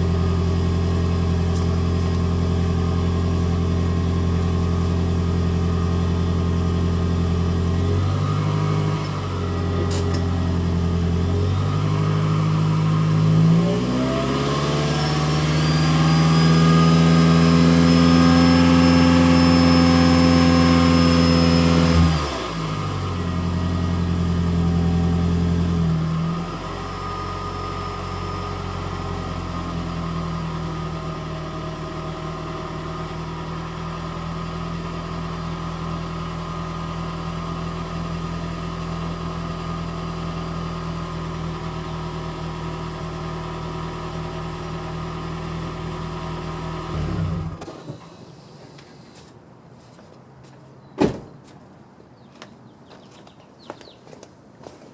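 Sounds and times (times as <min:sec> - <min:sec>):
car engine running: 0:00.0 - 0:13.5.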